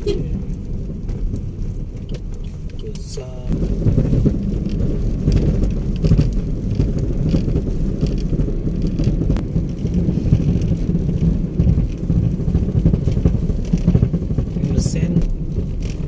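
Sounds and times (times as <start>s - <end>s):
vehicle interior rumble: 0.0s - 16.0s
knocks and rattles: 3.5s - 16.0s.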